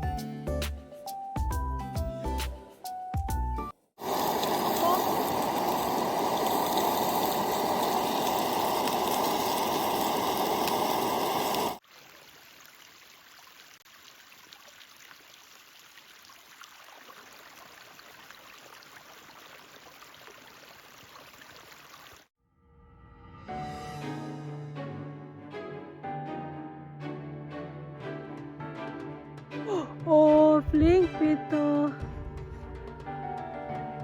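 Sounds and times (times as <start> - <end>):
running water rushing: 4.0 - 22.3.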